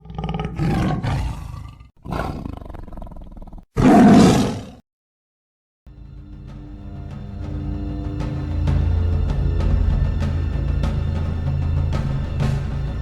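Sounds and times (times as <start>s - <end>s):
big cat roaring: 0.0s - 4.8s.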